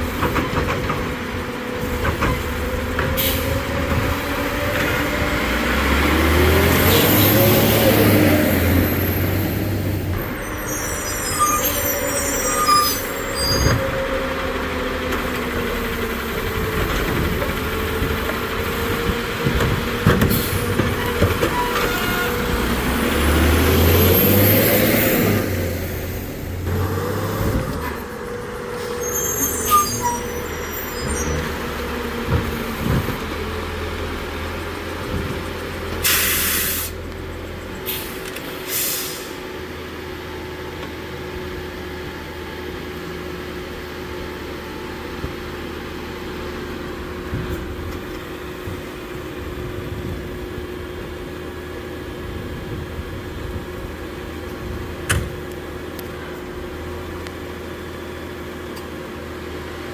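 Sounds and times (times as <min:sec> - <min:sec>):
garbage truck engine running: 0:00.0 - 0:38.4
air brake hiss: 0:36.0 - 0:37.0, 0:37.9 - 0:39.5.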